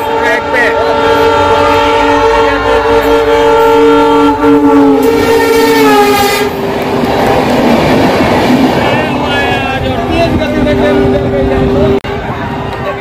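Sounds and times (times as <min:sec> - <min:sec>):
locomotive horn blast: 0:00.0 - 0:06.7.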